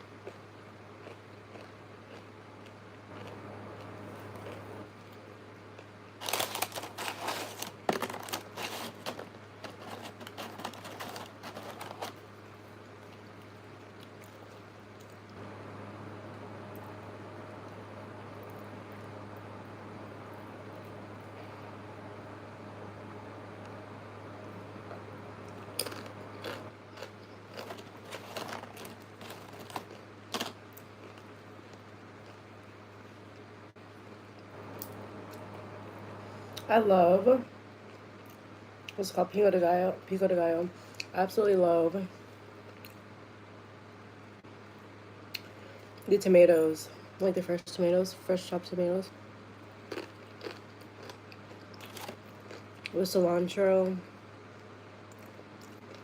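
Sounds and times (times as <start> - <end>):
steady low hum: 0.0 - 56.0
food packaging crinkling: 5.8 - 15.2, 25.8 - 32.4, 49.9 - 52.9.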